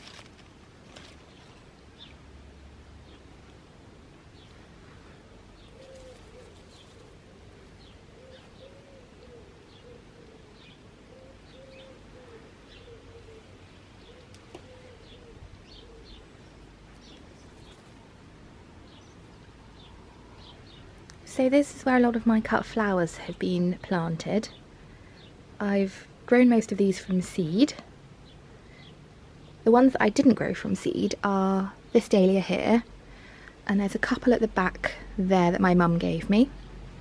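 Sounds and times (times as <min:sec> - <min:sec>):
songbirds chirping: 0:00.0 - 0:37.0
pigeon cooing: 0:05.6 - 0:16.4.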